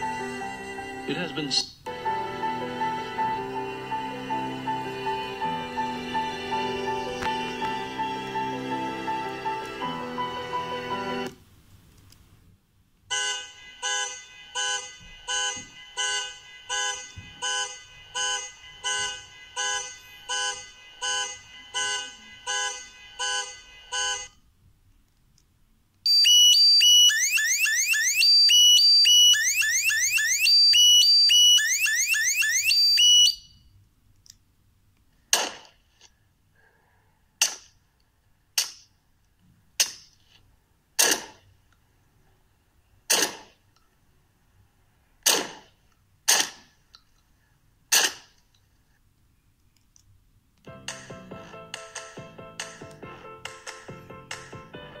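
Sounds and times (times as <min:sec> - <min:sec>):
car alarm through speaker: 0:13.1 - 0:24.3, 0:26.1 - 0:33.6.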